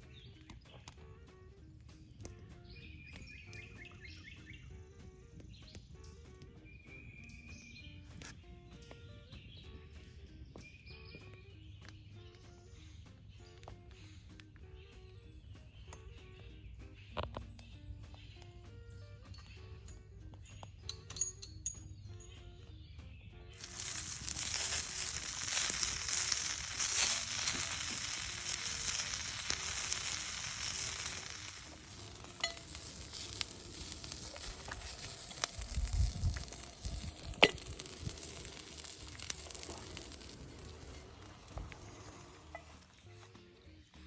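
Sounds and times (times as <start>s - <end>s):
food sizzling in a pan: 23.6s - 43.2s.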